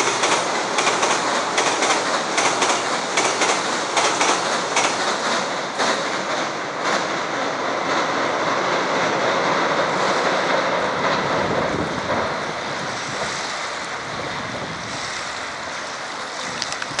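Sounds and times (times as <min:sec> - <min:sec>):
freight train on steel bridge: 0:00.0 - 0:17.0
wind on microphone: 0:10.0 - 0:15.8, 0:16.4 - 0:17.0.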